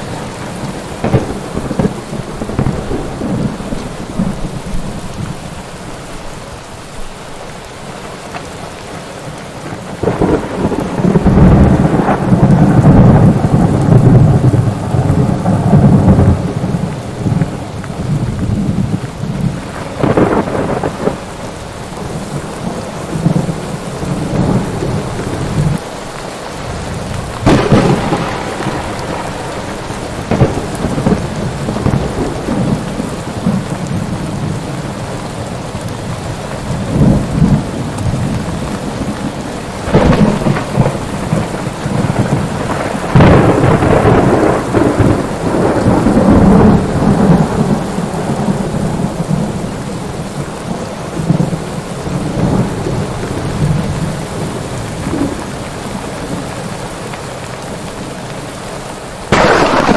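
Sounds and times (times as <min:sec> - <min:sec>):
rolling thunder: 0:00.0 - 0:05.6, 0:09.6 - 0:25.8, 0:26.6 - 0:35.2, 0:35.8 - 0:50.2, 0:59.3 - 0:59.9
heavy rain: 0:00.0 - 0:59.9.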